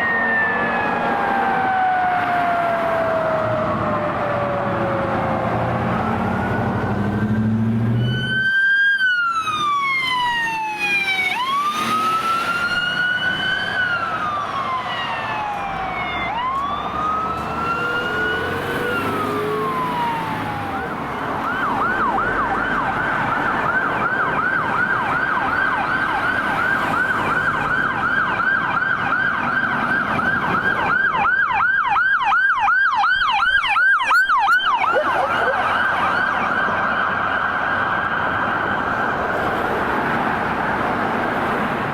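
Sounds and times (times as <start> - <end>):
second siren warbling: 0.0 - 23.7, 31.6 - 36.9
electronic siren wailing: 0.0 - 28.4, 30.1 - 37.2.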